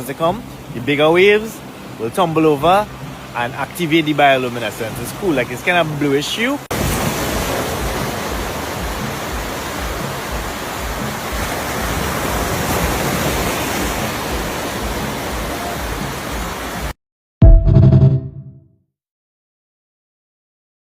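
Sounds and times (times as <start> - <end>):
ocean waves breaking on beach: 0.0 - 17.0
loud music note: 17.4 - 18.6.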